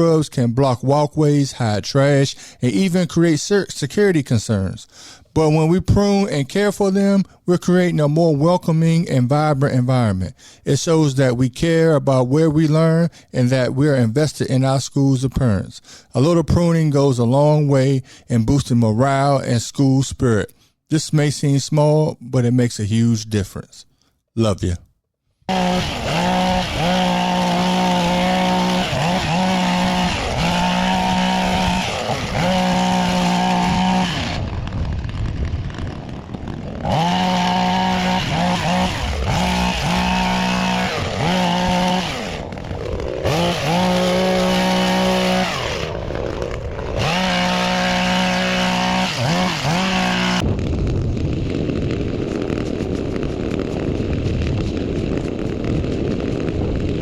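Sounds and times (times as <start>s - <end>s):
small petrol hedge trimmer engine: 25.5s - 35.1s, 35.7s - 50.4s.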